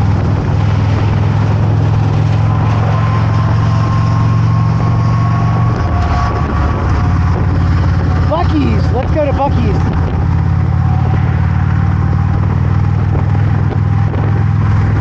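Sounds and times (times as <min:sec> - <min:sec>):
motorcycle engine running: 0:00.0 - 0:15.0
wind noise: 0:00.0 - 0:15.0.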